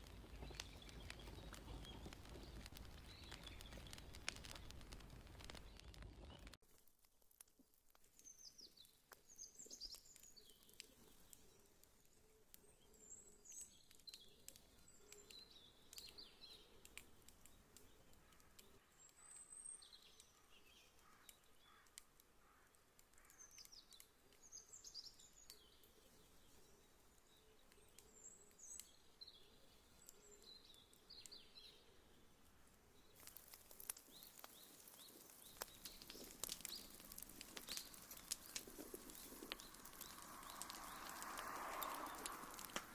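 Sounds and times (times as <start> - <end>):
wood fire crackling: 0.0 - 42.9
sharp pops: 33.2 - 42.9.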